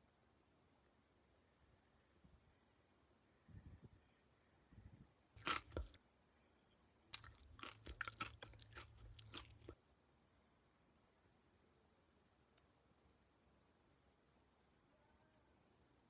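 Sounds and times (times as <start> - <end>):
crisp chewing crackles: 5.4 - 6.0, 7.1 - 9.8
crunchy bite: 5.4 - 6.0, 7.1 - 9.8.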